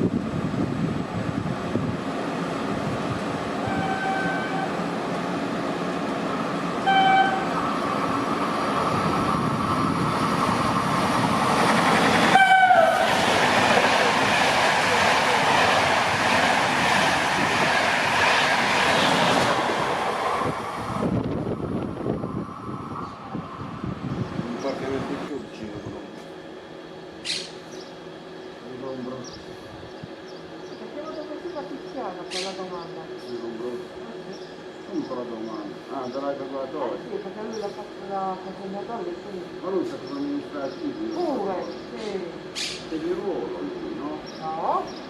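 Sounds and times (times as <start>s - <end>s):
train horn: 3.6s - 4.8s, 6.8s - 7.6s, 12.3s - 13.1s
train clattering on rails: 6.6s - 21.9s.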